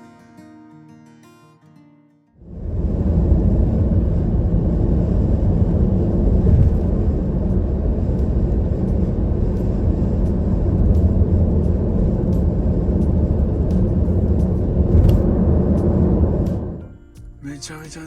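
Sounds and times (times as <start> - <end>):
low rumble: 2.4 - 16.9.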